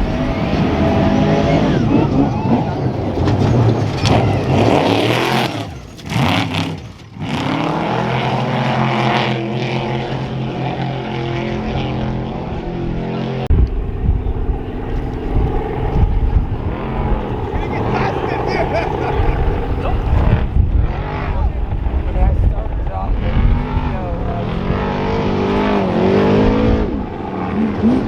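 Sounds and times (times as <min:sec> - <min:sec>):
engine holding steady note: 0:00.0 - 0:07.2, 0:08.0 - 0:28.0
racing truck engine passing: 0:00.0 - 0:28.0.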